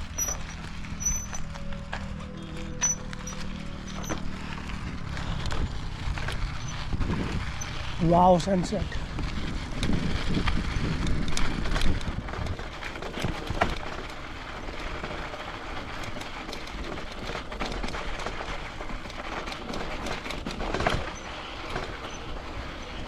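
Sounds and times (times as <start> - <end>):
bike rattling and knocking: 0.0 - 23.0
bike tyres rumbling over ground: 0.0 - 23.0
wind buffeting microphone: 4.7 - 15.2.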